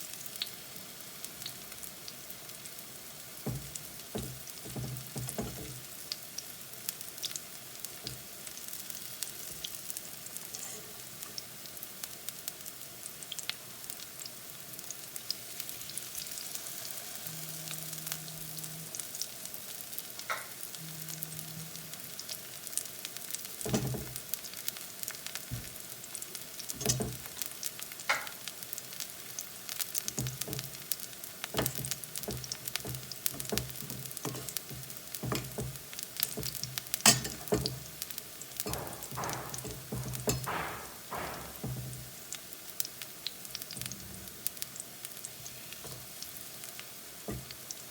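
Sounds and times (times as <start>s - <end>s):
plantain frying in oil: 0.0s - 47.9s
knocks: 3.5s - 5.8s, 31.6s - 35.8s, 38.6s - 42.1s.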